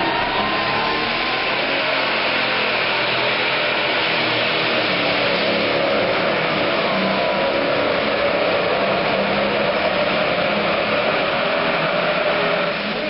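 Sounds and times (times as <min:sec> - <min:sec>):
diesel engine running loud: 0:00.0 - 0:13.0.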